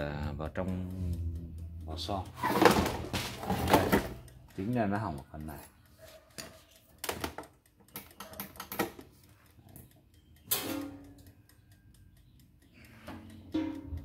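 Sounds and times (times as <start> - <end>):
air fryer parts knocking: 2.4 - 4.3, 10.5 - 11.2, 13.1 - 14.0
ringing metal clank: 10.5 - 11.2, 13.4 - 14.0.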